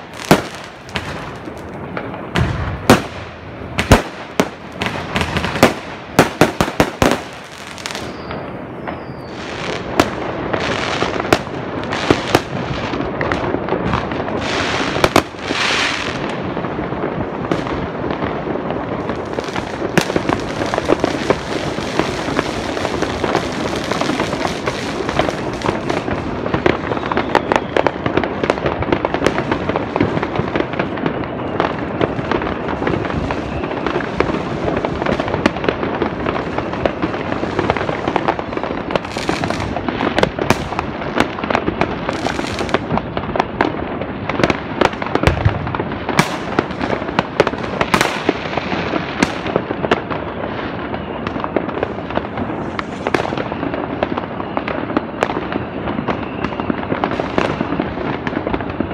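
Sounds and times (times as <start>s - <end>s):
deep firework boom: 0.0s - 10.6s
distant fireworks crackling: 0.0s - 58.9s.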